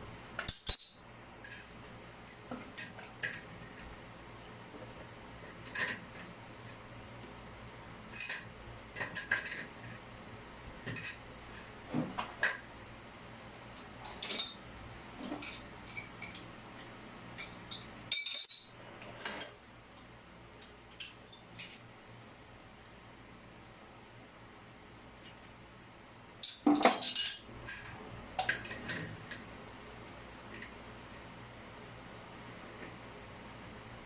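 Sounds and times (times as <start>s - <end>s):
small hard parts clinking: 0.4s - 1.7s, 8.1s - 10.0s, 17.4s - 18.8s, 20.6s - 21.9s, 26.4s - 29.1s
parts rattle: 26.4s - 29.1s.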